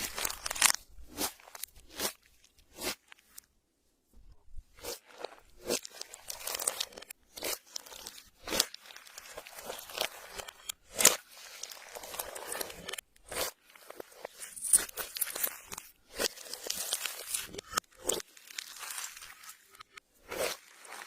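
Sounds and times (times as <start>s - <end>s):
slime squelching: 4.8s - 21.0s.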